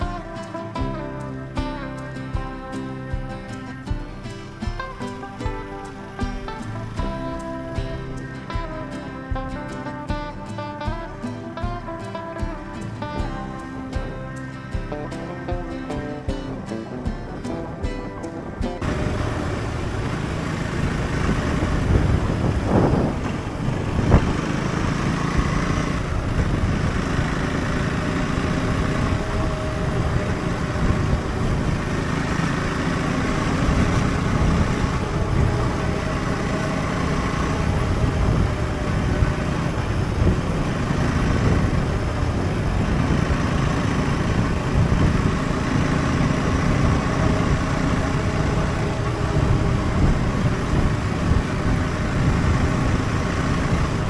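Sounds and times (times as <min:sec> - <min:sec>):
motorcycle engine rumbling: 0:00.0 - 0:54.0.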